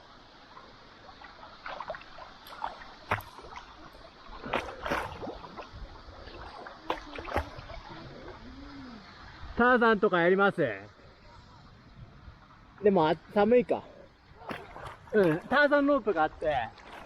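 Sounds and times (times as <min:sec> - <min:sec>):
water gurgling: 0:00.1 - 0:09.5, 0:13.3 - 0:17.0
paddle splashing in water: 0:01.0 - 0:08.5, 0:14.3 - 0:17.0.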